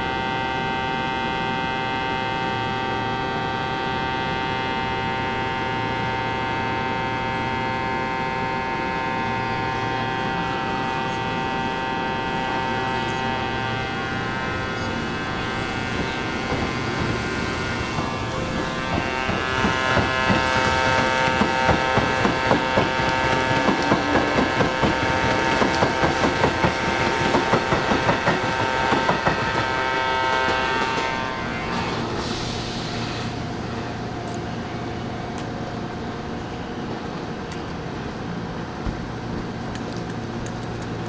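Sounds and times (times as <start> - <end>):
train wheels clicking over rail joints: 15.6 - 31.2.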